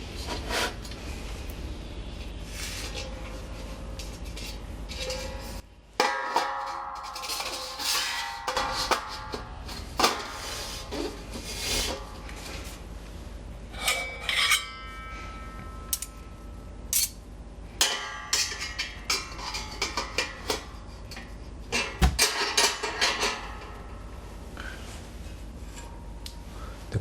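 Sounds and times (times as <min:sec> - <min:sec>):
metal clinking and scraping: 0:02.5 - 0:12.8, 0:13.7 - 0:17.2, 0:17.8 - 0:24.1.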